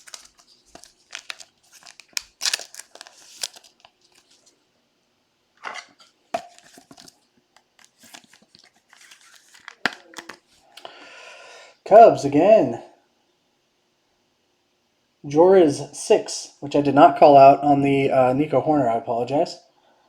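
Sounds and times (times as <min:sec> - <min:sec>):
plastic packaging crinkling: 0:00.0 - 0:04.5, 0:06.0 - 0:10.7.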